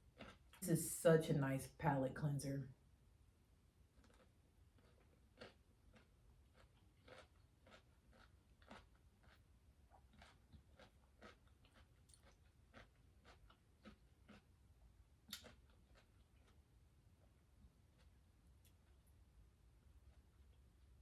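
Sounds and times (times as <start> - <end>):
chewing crisp cucumber: 0.0 - 0.6, 3.9 - 21.0.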